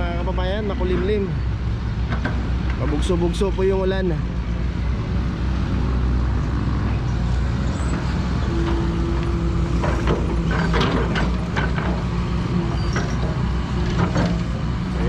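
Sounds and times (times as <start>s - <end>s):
excavator diesel engine running: 4.0s - 15.0s
metallic clanks and knocks: 9.6s - 12.3s, 12.9s - 14.6s.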